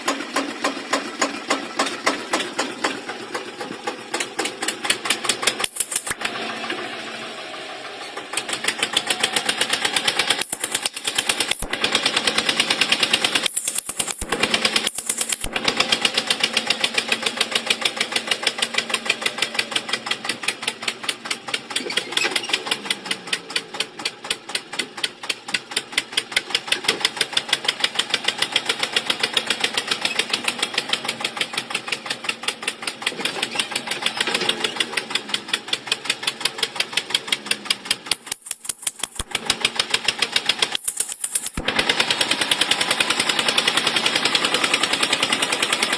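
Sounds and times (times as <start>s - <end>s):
small motor clattering clicks: 0.0s - 6.4s, 9.6s - 16.2s, 33.1s - 45.9s.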